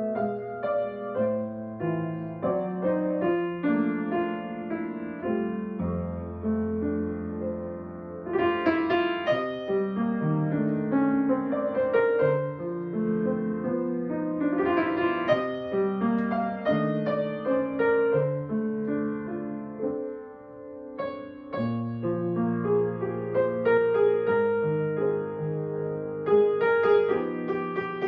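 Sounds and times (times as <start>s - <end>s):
slow gentle solo piano: 0.0s - 28.0s.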